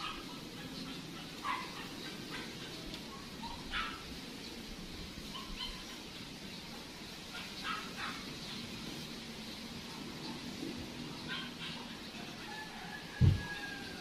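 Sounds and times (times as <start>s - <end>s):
dog barking: 0.0s - 4.2s, 5.2s - 6.1s, 7.3s - 8.4s, 11.2s - 12.1s
steady background noise: 0.0s - 14.0s.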